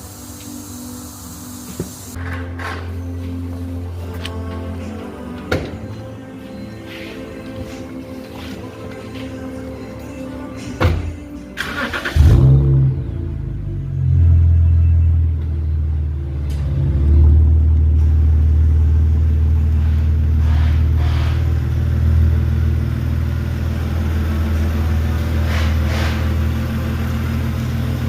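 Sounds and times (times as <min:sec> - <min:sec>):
car exhaust rumbling: 0:12.2 - 0:28.0.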